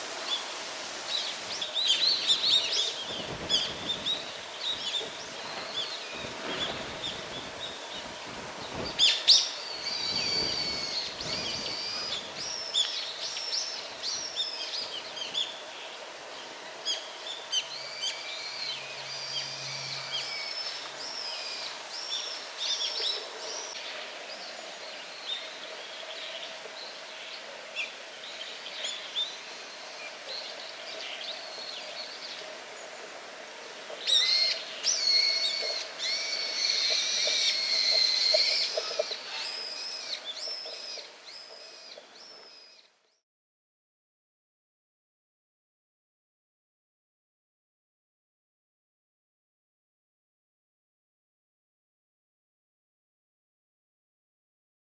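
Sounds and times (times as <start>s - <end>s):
small birds chirping: 34.0s - 42.9s.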